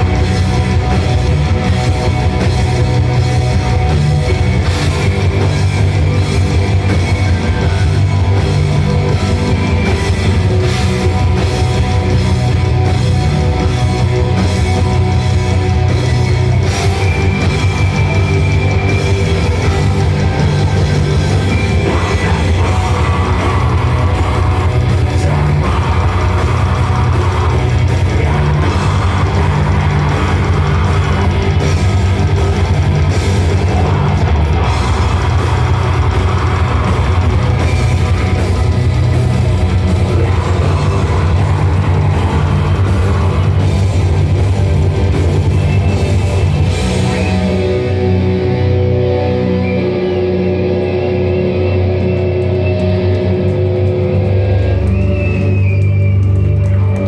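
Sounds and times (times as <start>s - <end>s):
distorted guitars: 0.0s - 57.0s
drum kit: 0.0s - 57.0s.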